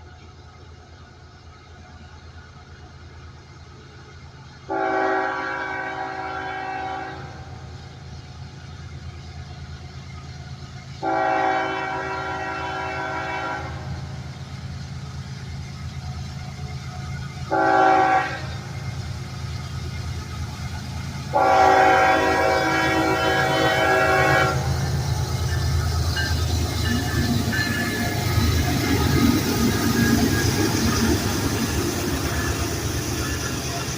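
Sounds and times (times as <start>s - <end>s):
diesel locomotive rumble: 0.0s - 33.9s
locomotive air horn: 4.7s - 7.6s, 11.0s - 14.1s, 17.5s - 18.7s, 21.3s - 24.8s.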